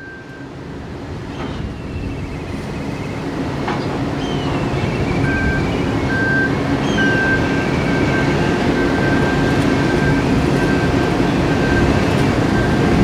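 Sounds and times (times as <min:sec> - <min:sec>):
ship machinery rumble: 0:00.0 - 0:13.0.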